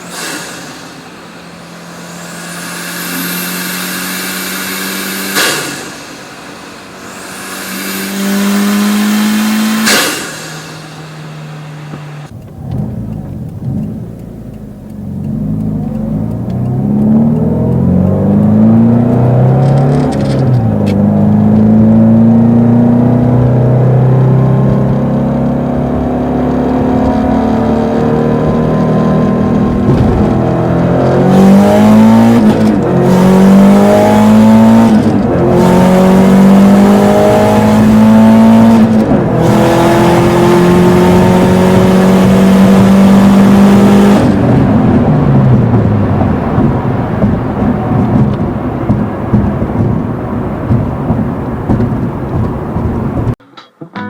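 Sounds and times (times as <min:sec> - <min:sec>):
turbo whoosh: 0:00.0 - 0:12.4
turbocharged engine revving: 0:00.0 - 0:53.4.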